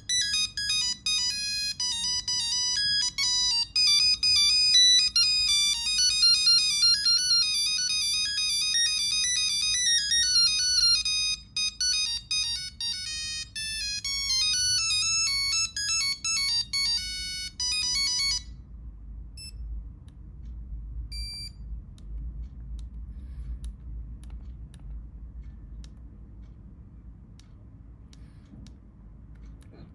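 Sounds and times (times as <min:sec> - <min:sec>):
monophonic phone ringtone: 0:00.0 - 0:18.6
short faint beeps: 0:21.1 - 0:21.7.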